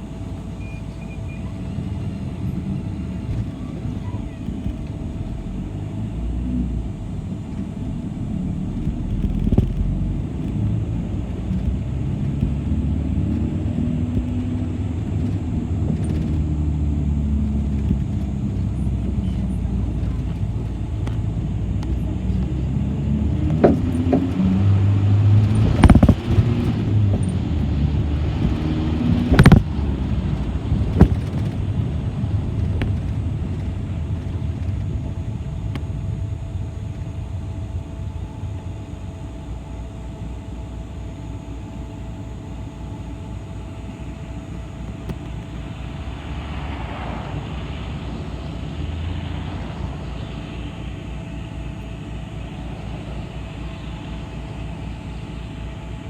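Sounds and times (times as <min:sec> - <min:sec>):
bus rumble from inside: 0:00.0 - 0:56.0
sharp knocks: 0:23.5 - 0:24.6.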